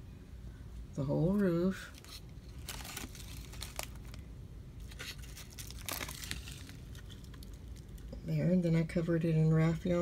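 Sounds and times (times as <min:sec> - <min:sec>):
dry rustling and crinkling: 0:01.3 - 0:08.4.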